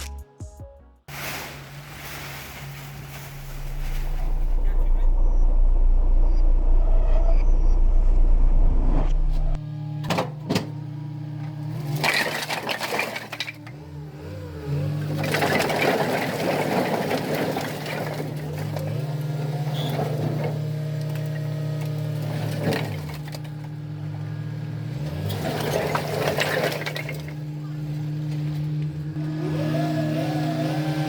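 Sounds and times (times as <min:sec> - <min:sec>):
truck engine running: 0:07.4 - 0:31.0
firewood logs clattering: 0:11.4 - 0:29.0.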